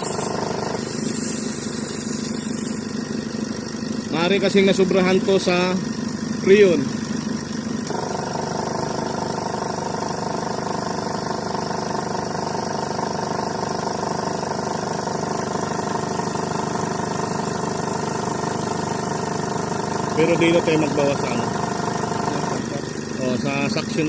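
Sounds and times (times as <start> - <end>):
ac compressor tones: 0.0 - 11.4, 18.2 - 24.0
engine running: 0.0 - 24.0.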